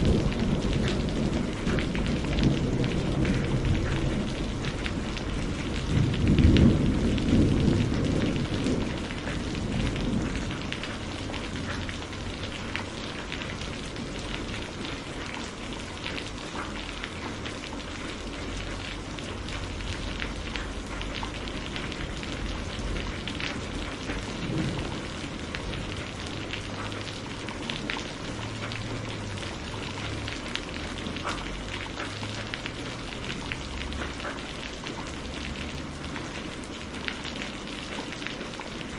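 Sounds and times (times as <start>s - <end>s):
low roll of thunder: 0.0s - 15.7s, 18.6s - 31.7s
steady rain: 0.0s - 38.9s
sharp crackles and ticks: 0.2s - 38.9s.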